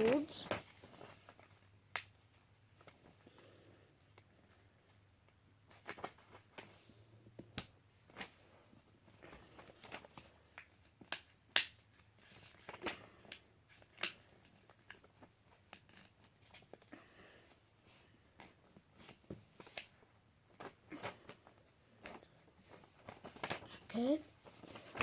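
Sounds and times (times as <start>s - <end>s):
paper folding and creasing: 5.7s - 6.9s, 7.5s - 16.9s, 18.4s - 25.0s.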